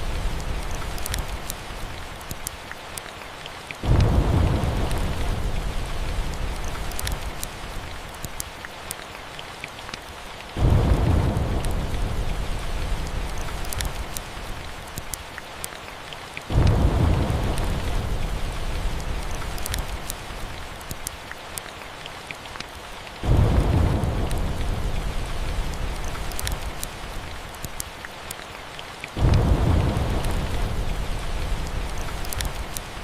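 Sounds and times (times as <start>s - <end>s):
steady rain: 0.0s - 33.0s
thunder rolling: 3.8s - 6.8s, 10.6s - 13.6s, 16.5s - 19.4s, 23.2s - 26.2s, 29.2s - 32.8s.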